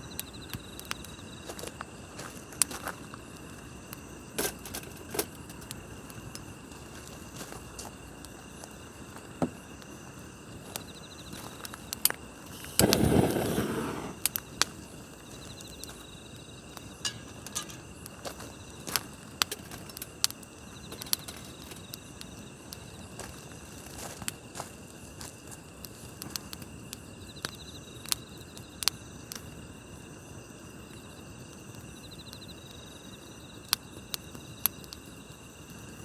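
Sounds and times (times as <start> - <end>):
crickets chirping: 0.0 - 36.0
campfire crackling and popping: 0.1 - 23.2
rushing burst from fire: 12.4 - 14.9.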